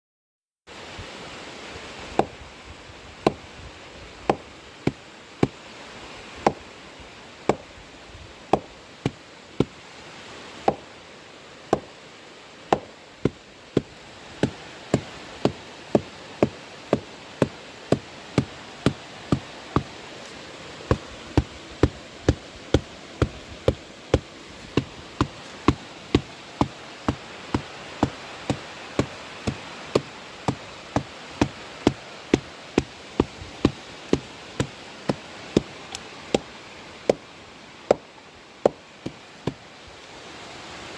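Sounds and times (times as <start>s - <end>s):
steady hiss: 0.7s - 40.9s
rhythmic knocking on wood: 4.3s - 5.6s, 8.5s - 9.8s, 10.6s - 10.8s, 11.7s - 11.9s, 12.7s - 20.0s, 20.9s - 35.7s.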